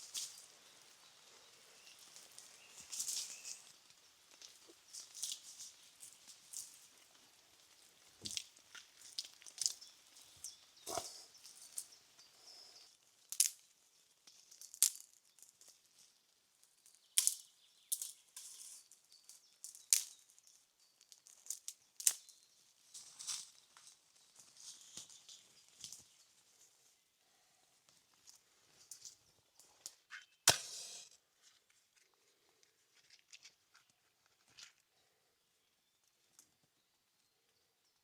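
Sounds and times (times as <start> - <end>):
sharp snaps and crackles: 0.0 - 26.7, 27.8 - 34.8
soft rustling: 31.3 - 35.2.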